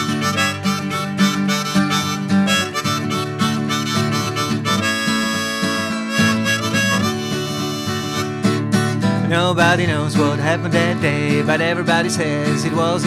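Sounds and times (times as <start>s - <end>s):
harmonica playing: 0.0s - 8.8s
guitar: 0.0s - 13.0s.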